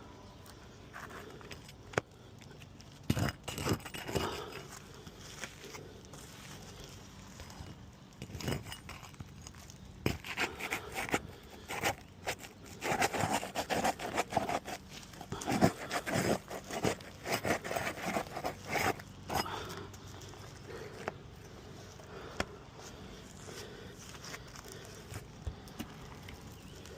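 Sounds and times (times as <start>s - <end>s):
tool scraping roof shingles: 3.0s - 6.4s, 8.2s - 19.8s.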